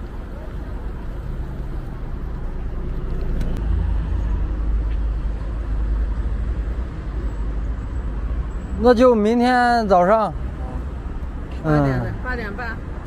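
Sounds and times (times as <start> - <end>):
vehicle rumble: 0.0 - 13.0.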